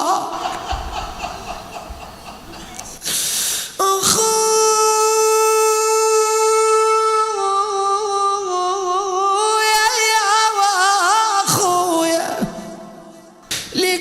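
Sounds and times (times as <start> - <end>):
solo voice chanting a lament: 3.8 - 14.0.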